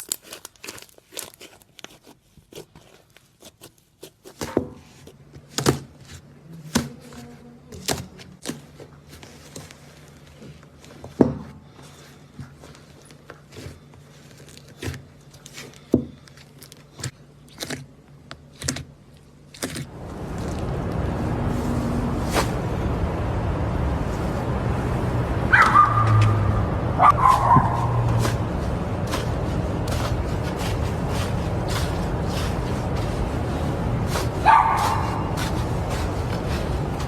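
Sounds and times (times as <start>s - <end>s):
crunchy slime crackling: 0.0s - 4.4s.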